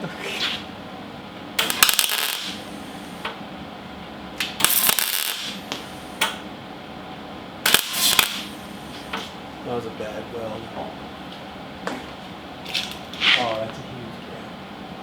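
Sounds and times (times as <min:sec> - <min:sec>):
welder crackling buzz: 0:01.5 - 0:03.4, 0:04.4 - 0:06.4, 0:07.6 - 0:09.5.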